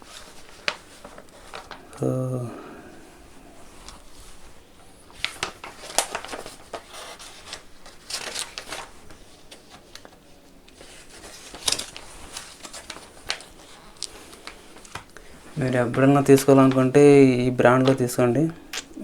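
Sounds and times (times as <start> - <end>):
paper pages rustling: 0.0 - 2.1, 3.2 - 19.0.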